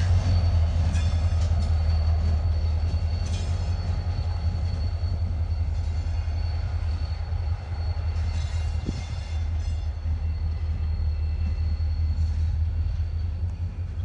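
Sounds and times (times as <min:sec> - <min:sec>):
faint high whine: 0:00.0 - 0:14.0
freight train rumbling past: 0:00.0 - 0:14.0.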